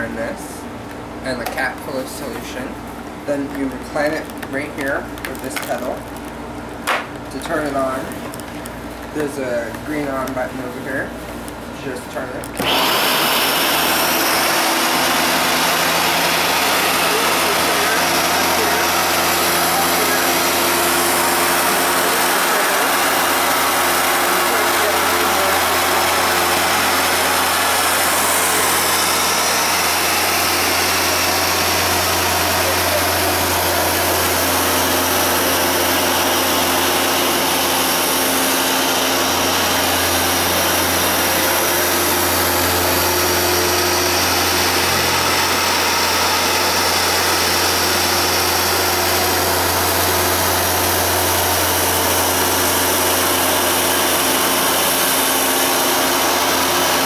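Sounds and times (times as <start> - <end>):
carpet washer motor whirring: 12.6 - 57.0.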